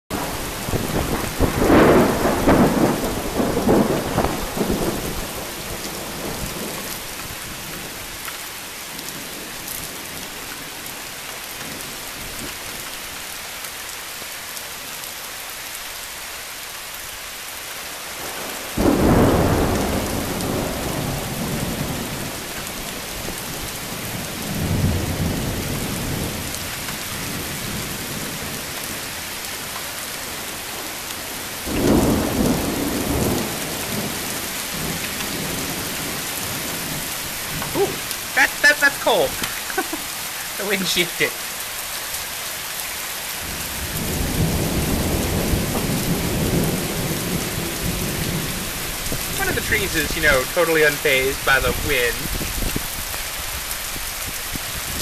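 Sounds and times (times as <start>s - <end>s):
loud thunder clap: 0.1s - 5.3s, 18.8s - 22.1s
thunder rumbling: 0.1s - 7.0s, 18.8s - 22.4s, 43.4s - 49.9s
steady rain: 0.1s - 55.0s.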